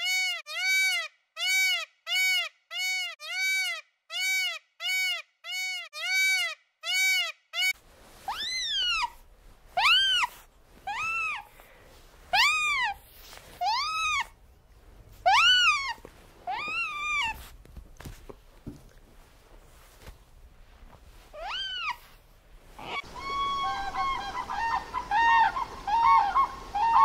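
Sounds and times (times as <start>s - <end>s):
high whining animal calls: 8.3s - 9.2s, 9.8s - 11.5s, 15.2s - 17.4s, 21.4s - 22.1s, 22.8s - 27.0s.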